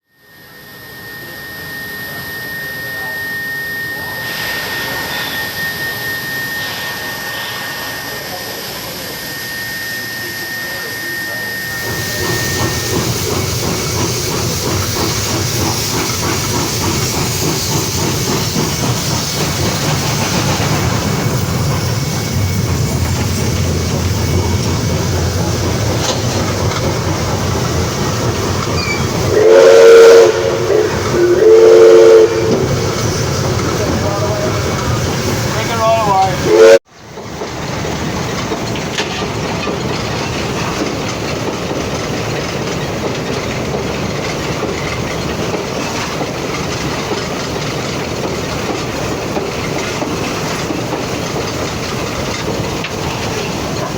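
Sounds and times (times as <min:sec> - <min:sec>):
steam locomotive running: 0:00.0 - 0:53.9
thin high tone: 0:00.2 - 0:11.9
steam hissing: 0:00.2 - 0:53.9.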